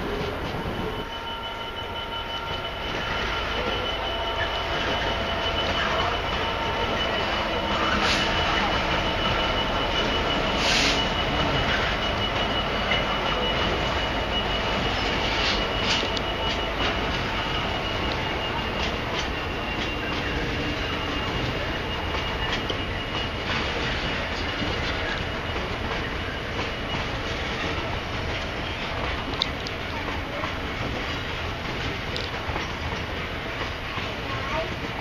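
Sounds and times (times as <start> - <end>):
thin high whine: 0.0 - 27.3
diesel locomotive engine rumbling: 0.0 - 35.0
hissing squeal: 0.1 - 27.9.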